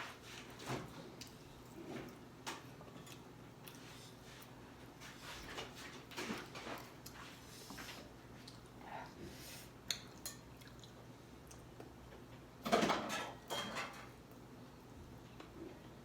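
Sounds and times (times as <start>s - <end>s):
dishes and cutlery clinking: 12.6s - 14.2s.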